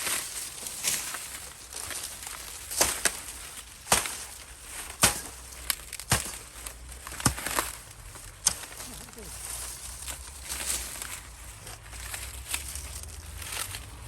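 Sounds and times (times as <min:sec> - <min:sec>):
corn ears snapping: 0:00.0 - 0:09.3
rustle of dry stalks: 0:00.0 - 0:14.0.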